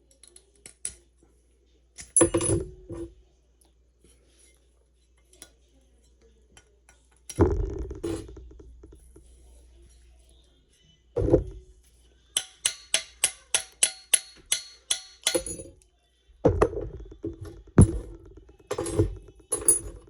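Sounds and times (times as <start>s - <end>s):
metal parts clanking: 7.3s - 9.2s, 14.4s - 15.8s, 16.5s - 20.0s.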